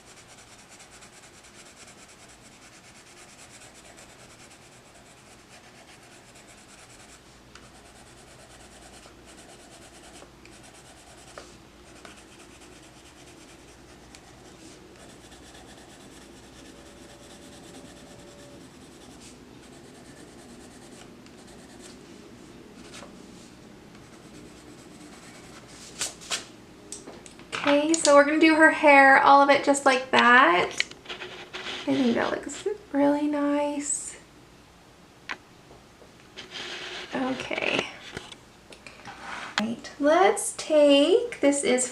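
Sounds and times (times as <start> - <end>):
pencil scratching on paper: 0.0 - 22.0, 24.0 - 25.8.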